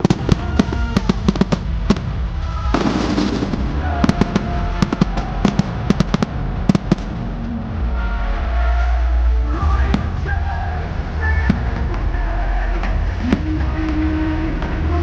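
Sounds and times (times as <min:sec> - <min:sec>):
fireworks bangs: 0:00.0 - 0:08.0
crackling rumble: 0:00.0 - 0:15.0.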